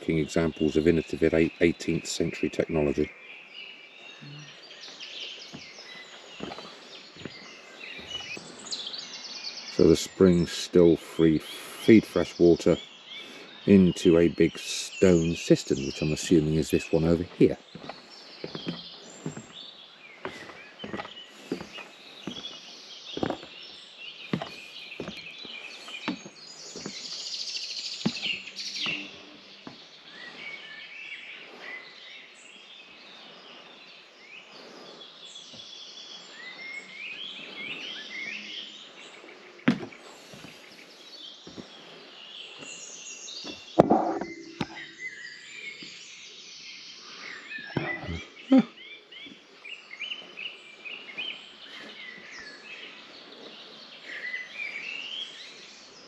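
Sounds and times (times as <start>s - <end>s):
birds singing and chirping: 0.0s - 56.0s
sharp knocks: 39.7s - 40.0s, 43.8s - 44.9s.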